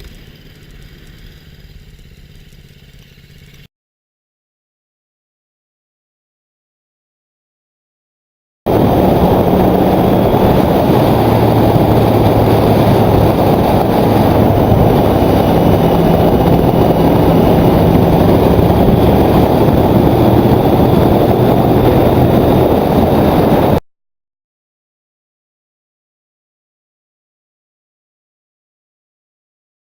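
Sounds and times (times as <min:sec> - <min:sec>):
motorcycle engine hum: 0:00.0 - 0:03.7, 0:08.7 - 0:23.8
wind rush over microphone: 0:08.7 - 0:23.8.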